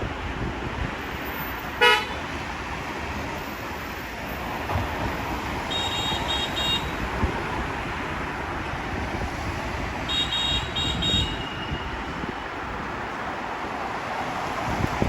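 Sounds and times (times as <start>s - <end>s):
wind and road rush: 0.0s - 15.0s
vehicle horn beep: 1.8s - 2.2s, 5.7s - 6.9s, 10.1s - 12.0s.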